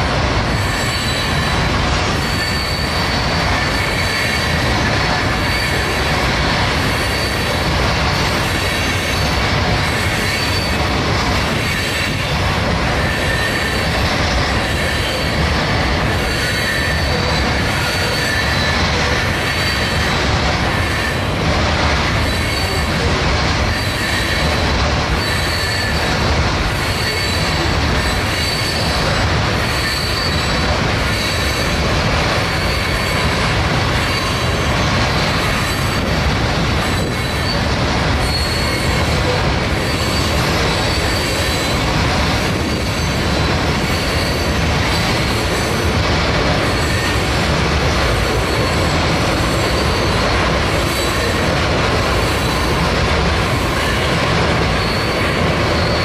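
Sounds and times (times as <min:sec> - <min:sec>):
train wheels rumbling on rails: 0:00.0 - 0:56.0
high-pitched wheel squeal: 0:00.5 - 0:06.1, 0:06.8 - 0:07.6, 0:10.0 - 0:12.4, 0:13.0 - 0:21.3, 0:23.7 - 0:31.7, 0:36.9 - 0:45.5, 0:53.6 - 0:56.0.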